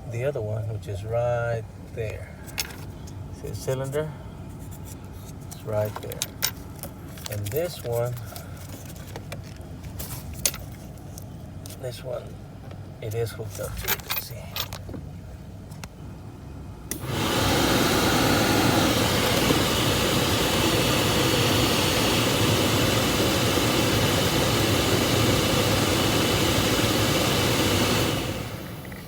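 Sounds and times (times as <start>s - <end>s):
car blower fan rushing air: 15.0s - 29.0s.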